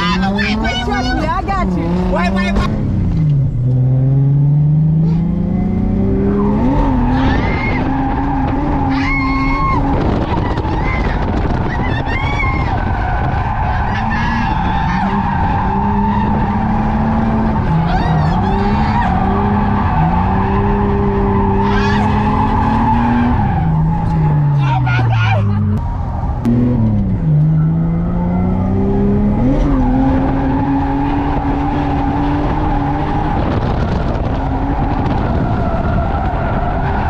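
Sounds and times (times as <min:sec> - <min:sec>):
car engine at high revs: 0:00.0 - 0:37.0
tire squeal: 0:06.2 - 0:26.5, 0:29.4 - 0:37.0.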